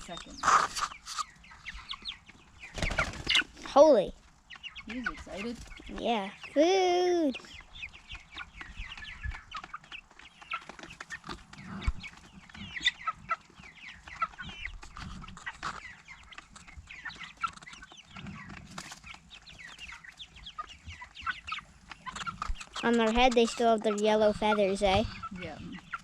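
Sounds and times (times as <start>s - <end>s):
chicks peeping and cheeping: 0.0s - 26.0s.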